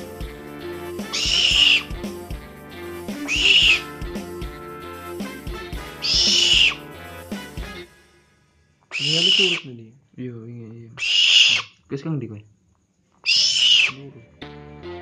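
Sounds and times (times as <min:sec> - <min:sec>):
music with steady beat: 0:00.0 - 0:08.7, 0:14.4 - 0:15.0
owl calling harshly: 0:01.0 - 0:02.2, 0:03.1 - 0:04.0, 0:05.9 - 0:07.0, 0:08.9 - 0:09.7, 0:11.0 - 0:11.8, 0:13.2 - 0:14.1.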